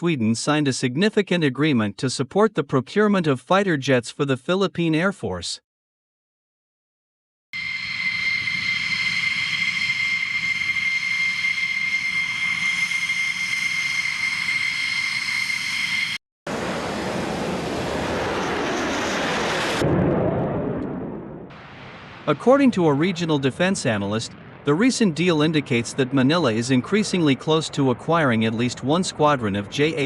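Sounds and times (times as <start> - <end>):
jet engine whine: 7.6 - 21.5
jet engine rushing noise: 8.0 - 28.0.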